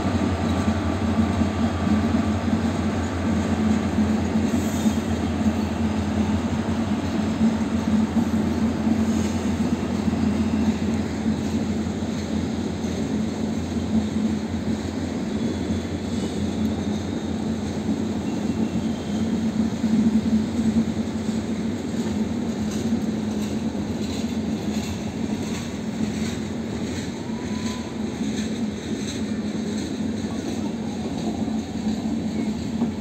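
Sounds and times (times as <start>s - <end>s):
train coaches rumbling past: 0.0s - 33.0s.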